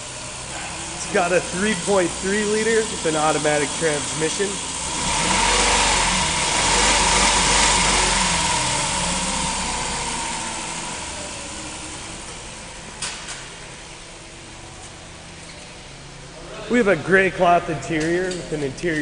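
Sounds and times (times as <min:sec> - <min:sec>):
car engine running: 0:00.0 - 0:16.4.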